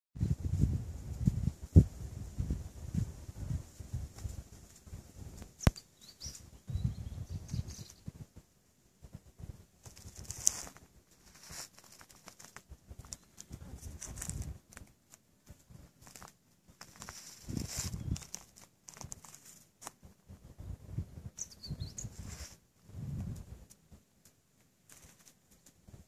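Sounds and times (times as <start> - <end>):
falling bird chirp: 5.6 - 8.1, 21.4 - 22.4
short bird calls: 21.4 - 22.2.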